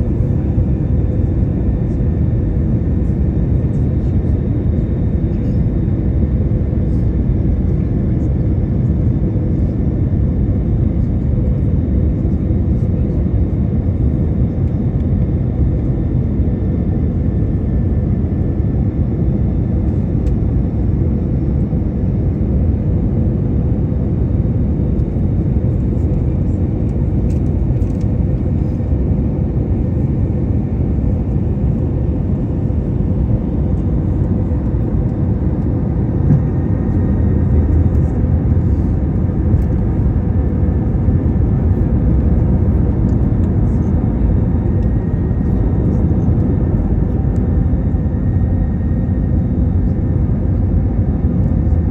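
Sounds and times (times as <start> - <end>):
airliner engine rumble: 0.0 - 51.9.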